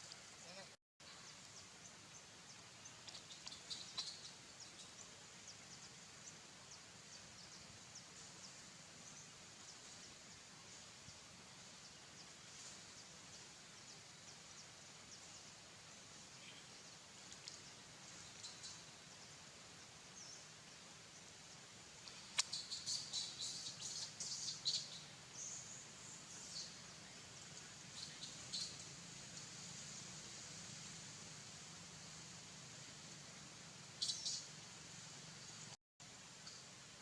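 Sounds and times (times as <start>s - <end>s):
steady hiss: 0.0s - 37.0s
high ticks and chirps: 2.5s - 4.9s, 22.0s - 30.2s.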